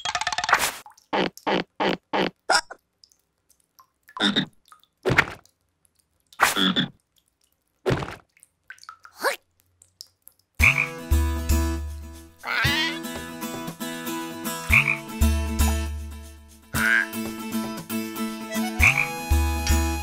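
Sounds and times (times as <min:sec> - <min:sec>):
cartoon frog croaking: 0:12.4 - 0:13.0, 0:16.7 - 0:17.2.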